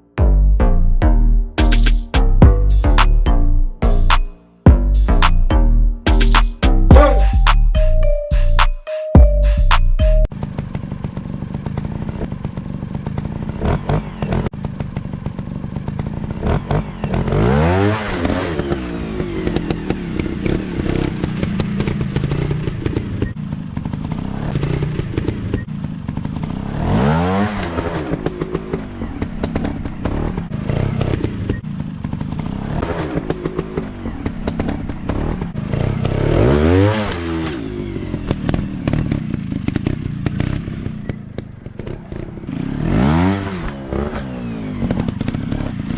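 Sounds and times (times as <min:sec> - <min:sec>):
dirt bike engine revving: 0:10.6 - 0:45.9.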